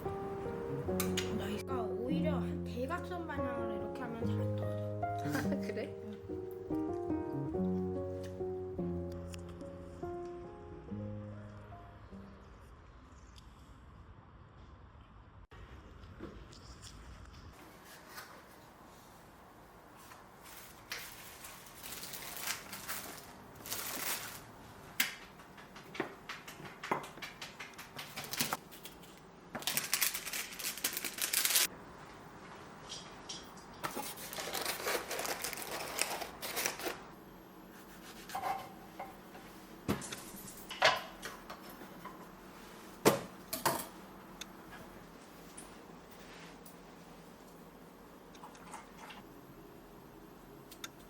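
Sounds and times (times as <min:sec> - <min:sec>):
rustling or scraping: 0:15.6 - 0:19.2.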